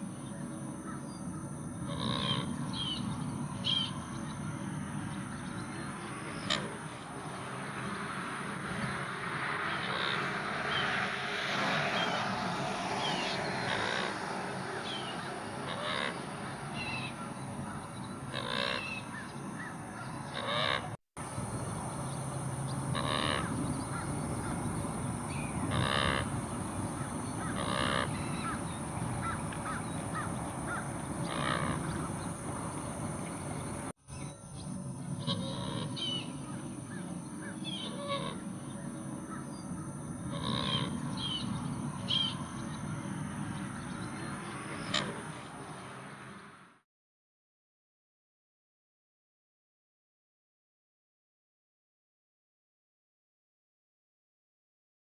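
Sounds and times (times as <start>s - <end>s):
birds cawing: 0.3s - 8.0s, 8.7s - 21.0s, 22.6s - 33.9s, 35.2s - 45.7s.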